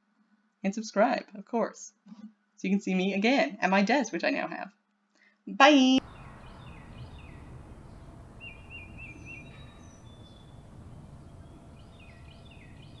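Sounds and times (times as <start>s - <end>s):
low background noise: 0.0s - 13.0s
bird warbling trill: 6.0s - 13.0s
small birds chirping: 6.0s - 13.0s.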